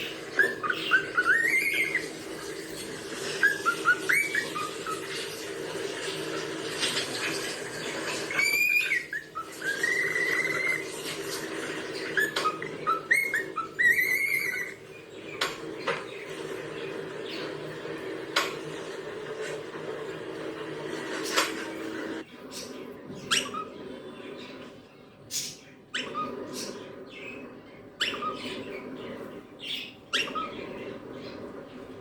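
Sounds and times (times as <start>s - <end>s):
cockatiel whistling: 0.0s - 6.4s, 8.0s - 15.5s, 23.2s - 23.8s, 25.9s - 26.6s, 28.0s - 28.8s, 29.8s - 30.7s.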